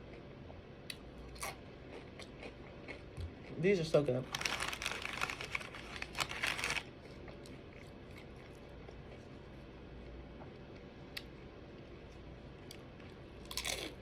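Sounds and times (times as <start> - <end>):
person chewing crunchy food: 1.2 - 3.6, 12.7 - 14.0.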